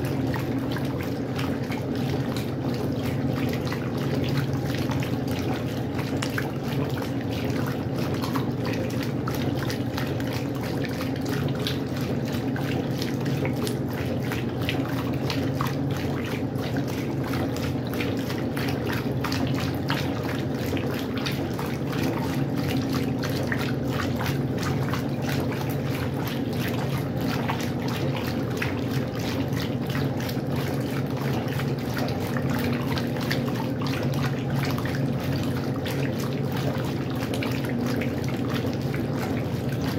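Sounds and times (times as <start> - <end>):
washing machine hum: 0.0 - 39.9
water splashing in washing machine: 0.0 - 39.9.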